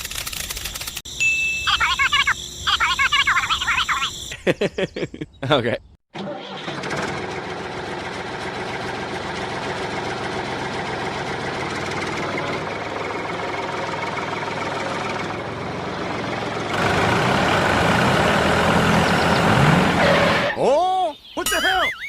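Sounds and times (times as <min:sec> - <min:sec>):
tractor engine droning: 0:06.2 - 0:20.6.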